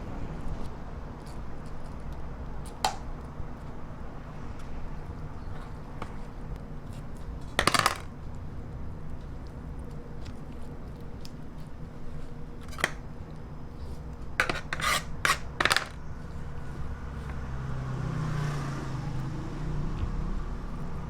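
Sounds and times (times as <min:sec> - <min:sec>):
rasping strokes: 0:13.8 - 0:15.6.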